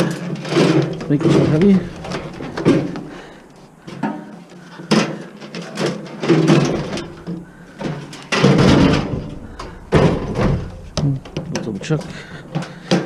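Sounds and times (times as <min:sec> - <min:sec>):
microwave oven knocks and metal clatters: 0:06.3 - 0:13.0.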